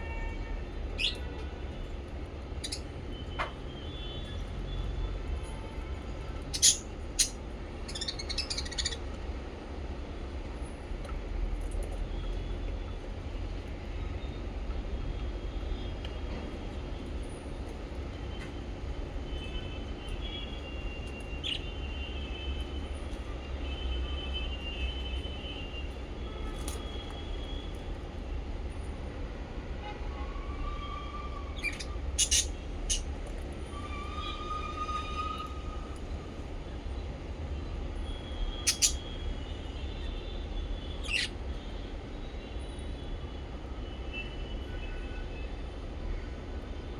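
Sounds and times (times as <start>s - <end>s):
parrots chirping: 1.0s - 1.3s, 2.6s - 2.9s, 6.4s - 9.1s, 21.3s - 21.7s, 31.5s - 33.1s, 38.6s - 39.1s, 41.0s - 41.4s.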